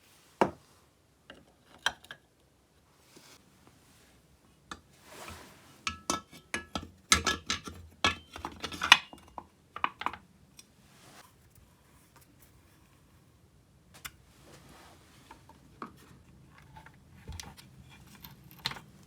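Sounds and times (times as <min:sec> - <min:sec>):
rustle: 0:05.0 - 0:05.9, 0:10.7 - 0:13.2, 0:14.0 - 0:19.0
metal parts and tools clinking: 0:17.4 - 0:19.0.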